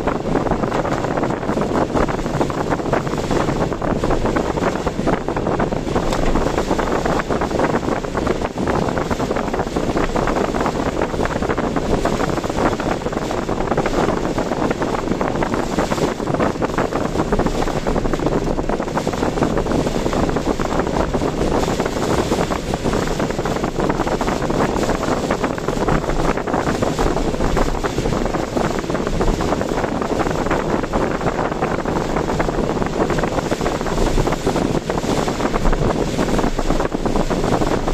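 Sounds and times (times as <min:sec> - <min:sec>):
car road and engine noise: 0:00.0 - 0:37.9
wind buffeting microphone: 0:00.0 - 0:37.9.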